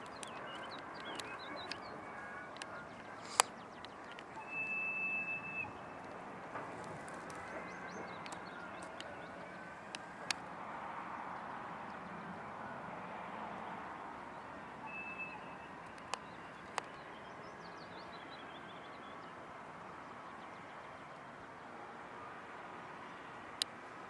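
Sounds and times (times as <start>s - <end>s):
sharp clicks: 0.0s - 4.4s
bird chirps: 0.0s - 6.3s.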